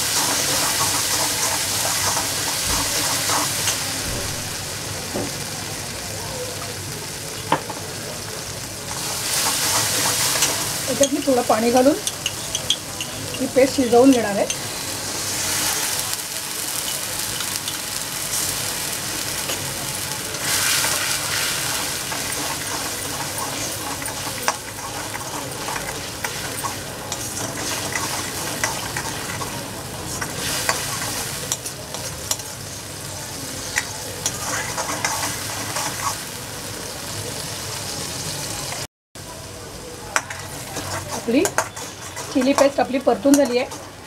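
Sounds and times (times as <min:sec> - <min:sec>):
paste sizzling in oil: 0:00.0 - 0:38.9, 0:40.2 - 0:44.0
spatula scraping a pan: 0:20.4 - 0:32.4, 0:33.6 - 0:36.2, 0:40.4 - 0:43.9.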